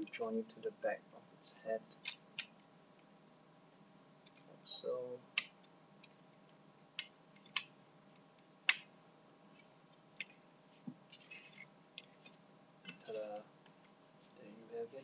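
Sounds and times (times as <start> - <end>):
soft handling rustle: 9.4 - 14.6.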